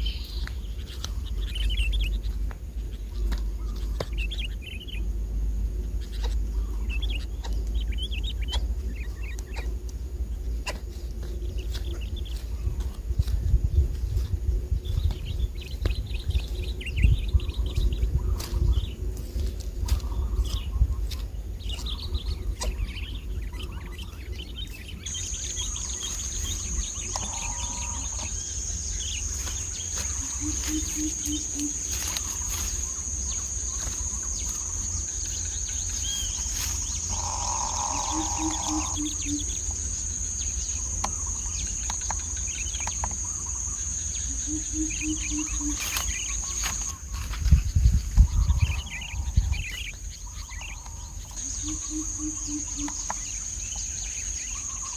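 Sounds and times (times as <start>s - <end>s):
wind rumbling on microphone: 0.0s - 43.8s, 45.1s - 54.9s
insect high-pitched drone: 0.0s - 54.9s
low hooting bird call: 25.0s - 41.5s, 43.2s - 47.0s, 50.2s - 54.9s.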